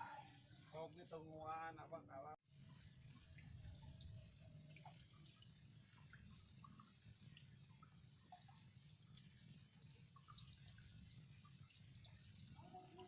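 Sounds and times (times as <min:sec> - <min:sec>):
water drips: 0:02.5 - 0:13.0.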